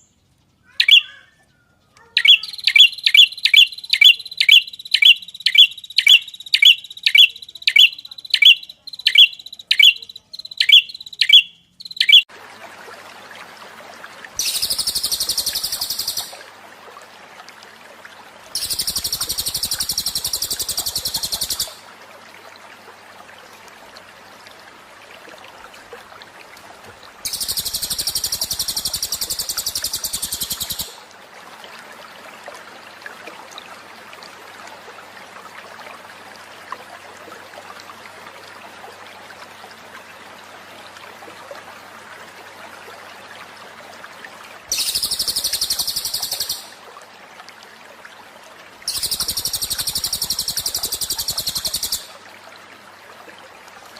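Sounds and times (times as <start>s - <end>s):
bird repeating sharp chirp: 0.7s - 1.3s, 2.2s - 12.3s, 14.4s - 16.4s, 18.6s - 21.8s, 27.3s - 31.0s, 44.7s - 46.8s
high buzzing bird trills: 0.7s - 1.3s, 2.1s - 12.2s, 14.4s - 16.4s.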